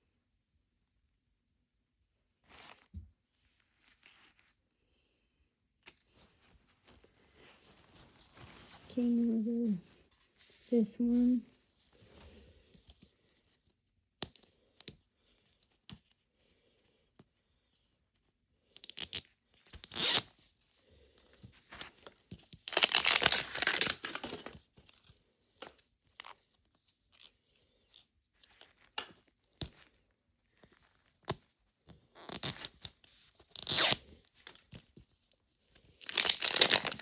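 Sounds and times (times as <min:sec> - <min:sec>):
plastic wrapping tearing and crinkling: 0:22.6 - 0:24.6, 0:33.5 - 0:34.6, 0:36.0 - 0:37.0.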